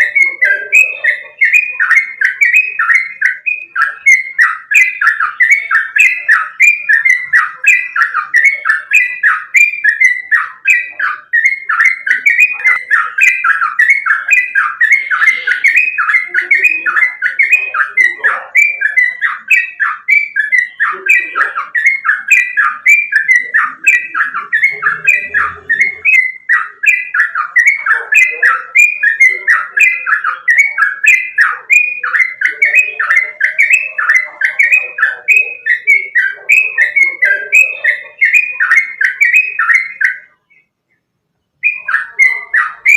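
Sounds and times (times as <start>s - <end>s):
bird singing whistled notes: 0.0s - 42.9s.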